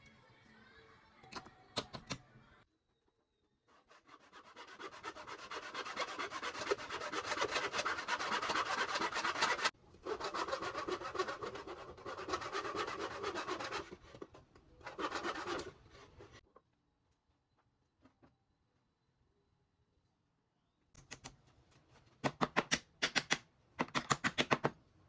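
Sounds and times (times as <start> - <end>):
sandpaper rubbing on wood: 3.8 - 14.0, 14.9 - 15.6.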